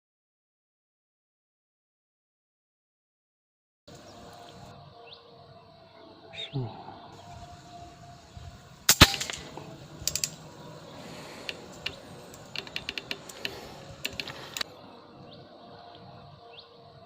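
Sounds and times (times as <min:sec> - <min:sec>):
air rifle shot: 0:08.8 - 0:10.5
small mechanical clicks: 0:10.0 - 0:10.4, 0:11.4 - 0:14.7.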